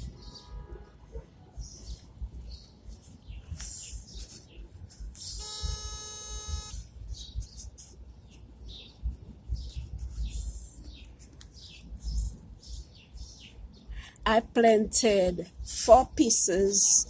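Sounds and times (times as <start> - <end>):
birds chirping: 0.0 - 14.2
steady horn-like tone: 5.2 - 6.8.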